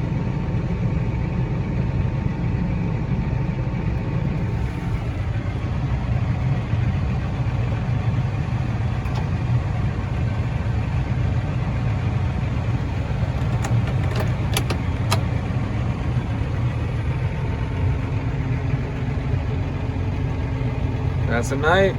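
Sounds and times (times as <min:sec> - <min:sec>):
diesel engine droning: 0:00.0 - 0:21.9
sharp clicks: 0:13.2 - 0:15.4.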